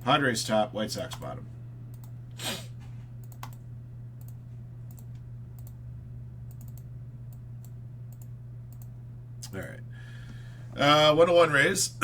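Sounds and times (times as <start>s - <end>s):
low electrical hum: 0.0s - 12.0s
computer mouse clicks: 1.9s - 2.2s, 3.2s - 3.6s, 4.2s - 5.8s, 6.5s - 8.9s.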